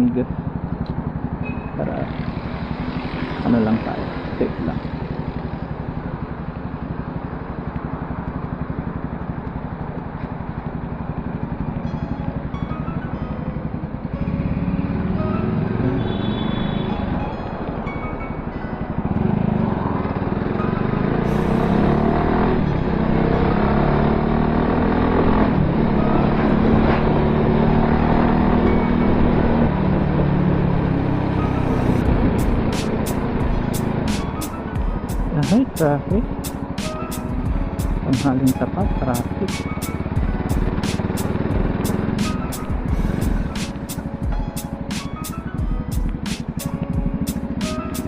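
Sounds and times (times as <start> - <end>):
motorcycle engine running: 0.0 - 48.0
road and wind noise: 0.0 - 48.0
wind rumble on microphone: 32.0 - 32.6.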